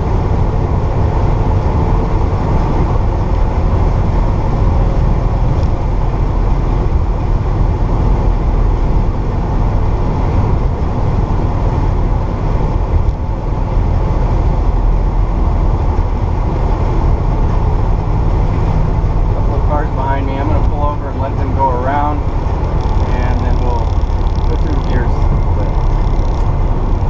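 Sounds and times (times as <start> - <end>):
car engine running: 0.0 - 27.0
road noise: 0.0 - 27.0.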